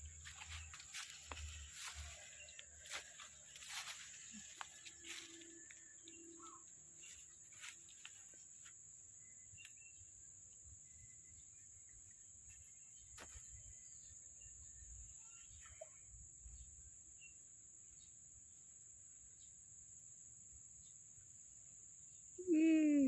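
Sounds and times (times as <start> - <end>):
bird chirps: 0.0 - 8.2
insects droning: 0.0 - 23.0.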